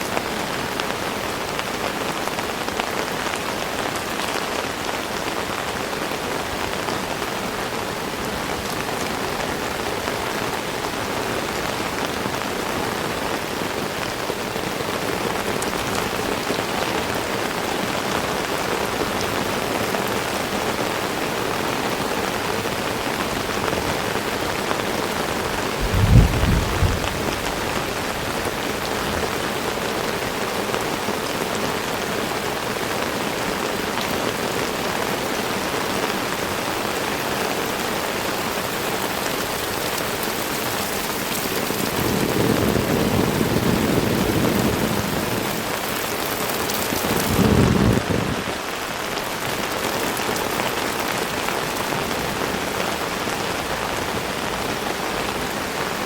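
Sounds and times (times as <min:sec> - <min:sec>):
heavy rain: 0:00.0 - 0:56.0
low rumbles: 0:25.6 - 0:29.3.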